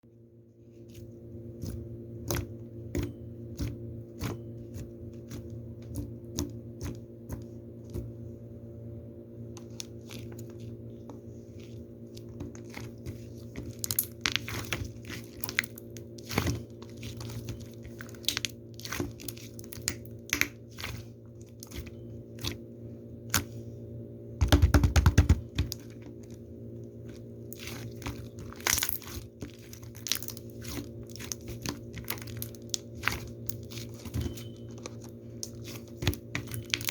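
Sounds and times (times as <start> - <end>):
low hum: 25.4 - 36.9.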